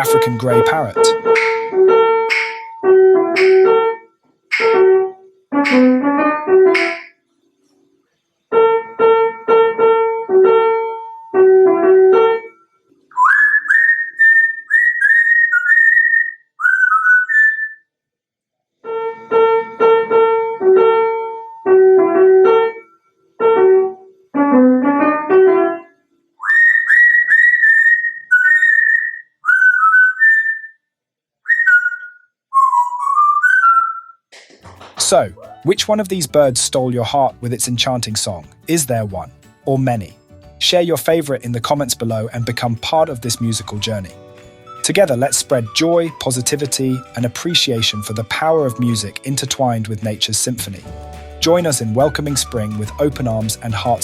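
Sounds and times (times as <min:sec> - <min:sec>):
parrot whistling: 0:00.0 - 0:02.8, 0:13.1 - 0:17.9, 0:26.4 - 0:30.8, 0:31.4 - 0:34.3, 0:43.3 - 0:47.2
keyboard notes: 0:00.0 - 0:07.2, 0:23.4 - 0:25.9.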